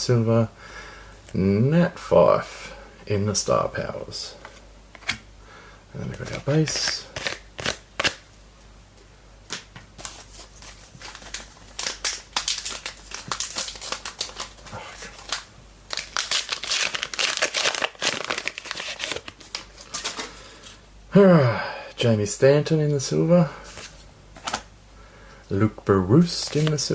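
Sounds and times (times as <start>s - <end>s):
foil wrapper crinkling and tearing: 11.0s - 20.3s.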